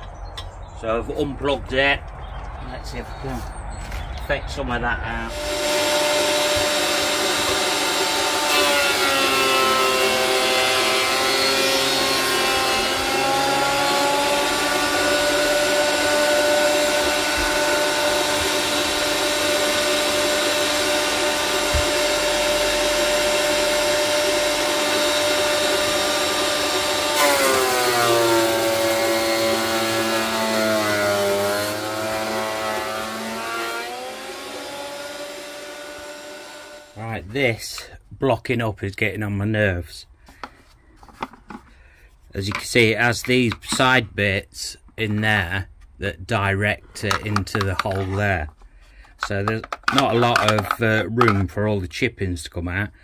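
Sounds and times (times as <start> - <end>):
power tool motor whining: 5.3 - 37.0.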